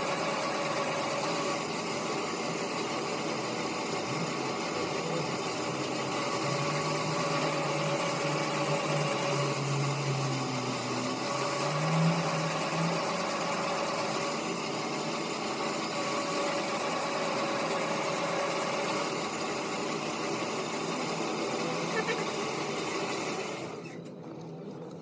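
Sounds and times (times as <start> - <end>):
machine motor running and winding down: 0.0 - 24.6.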